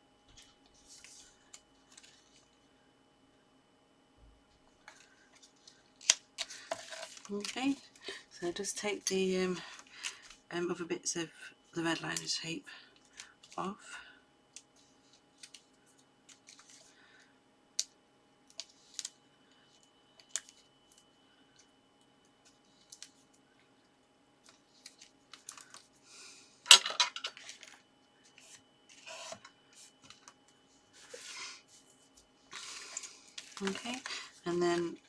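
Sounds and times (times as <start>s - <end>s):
paper rustling: 0.3s - 2.5s, 16.3s - 16.9s, 30.9s - 35.0s.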